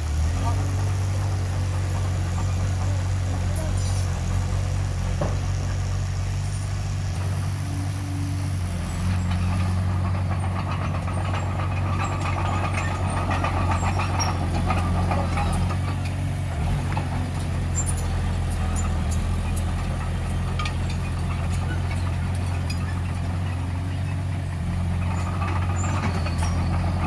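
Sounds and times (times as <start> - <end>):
diesel engine running: 0.0 - 27.0
rattling clatter: 8.9 - 27.0.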